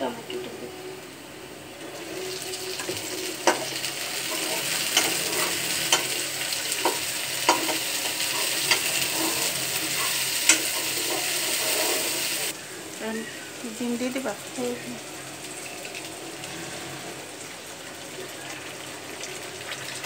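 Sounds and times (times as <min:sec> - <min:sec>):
vegetables sizzling in oil: 0:00.0 - 0:20.0
metal spatula knocking pan: 0:06.8 - 0:08.9.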